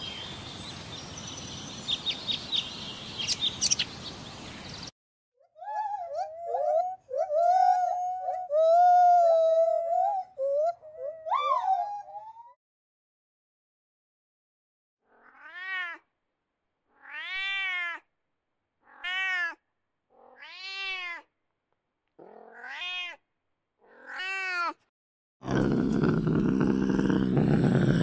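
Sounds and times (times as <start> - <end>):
wild cat mewing: 18.8 - 21.2, 22.2 - 23.2, 23.8 - 24.8, 25.4 - 28.0
rough low sound: 25.4 - 28.0.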